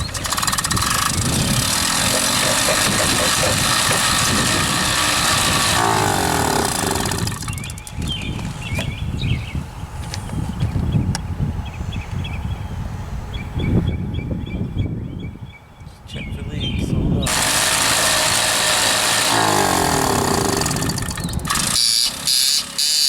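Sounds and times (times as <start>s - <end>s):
moped engine running: 0.0s - 8.4s, 17.3s - 23.0s.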